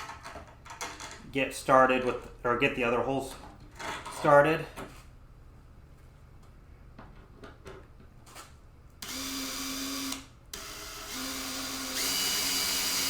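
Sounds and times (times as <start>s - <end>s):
power drill running: 9.0s - 13.0s.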